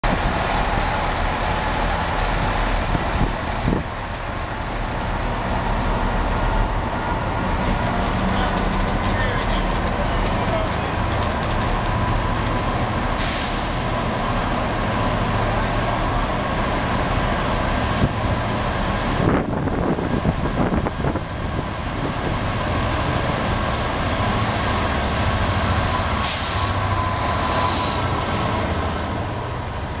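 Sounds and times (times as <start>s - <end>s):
diesel locomotive engine: 0.0s - 30.0s
train coaches rolling rumble: 0.0s - 30.0s
air hiss bursts: 13.2s - 14.0s, 26.2s - 26.9s.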